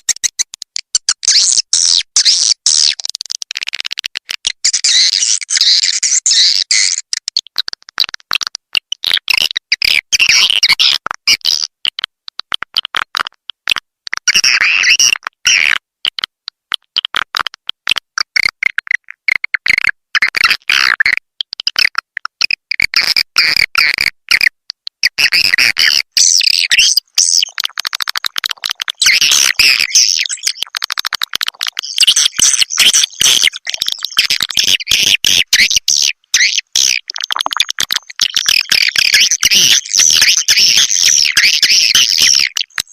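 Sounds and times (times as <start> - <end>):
swiftlets twittering and clicking: 26.1 - 42.9.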